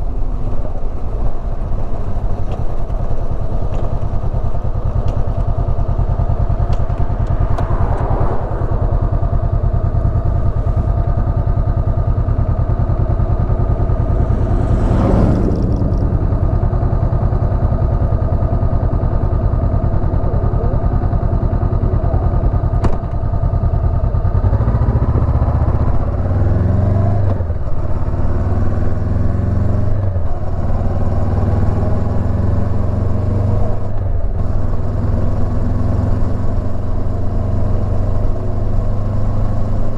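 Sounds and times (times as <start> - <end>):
motorcycle engine revving: 3.3 - 39.9
brief swell of noise: 6.8 - 11.2, 12.1 - 18.5.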